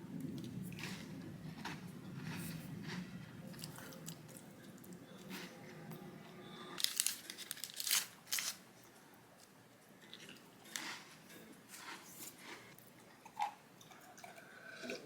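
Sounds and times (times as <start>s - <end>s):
crisp crinkling noises: 0.3s - 5.7s, 6.8s - 9.6s, 10.2s - 12.8s.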